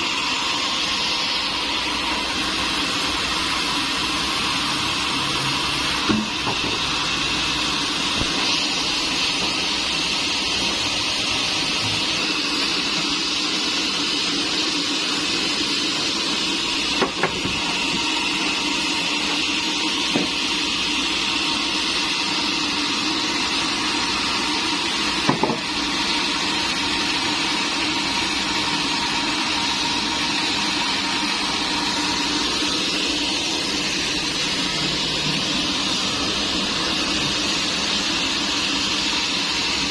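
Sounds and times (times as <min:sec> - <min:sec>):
sawmill machinery whine and hum: 0:00.0 - 0:39.9
sharp knocks of wood or metal: 0:25.3 - 0:25.6.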